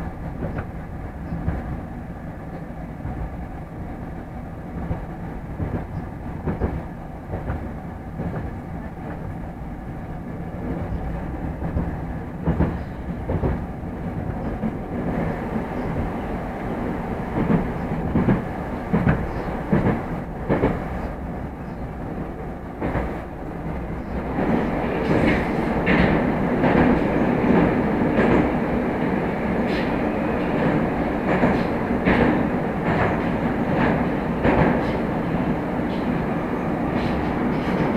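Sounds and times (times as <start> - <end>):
metro train rail rumble: 0.0 - 37.9
wheels clacking over rail joints: 22.8 - 37.9.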